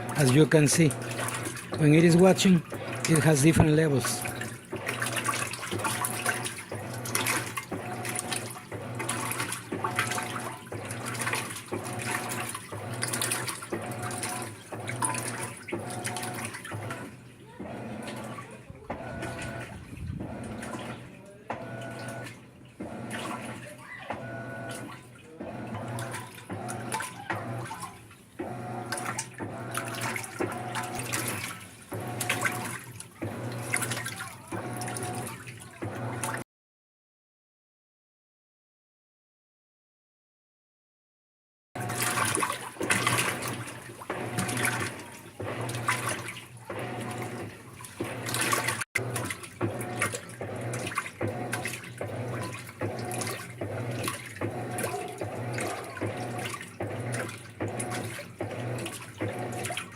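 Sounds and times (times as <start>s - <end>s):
agitator swishing water: 0.0s - 36.4s, 41.8s - 59.9s
washer motor humming: 0.0s - 36.4s, 41.8s - 59.9s.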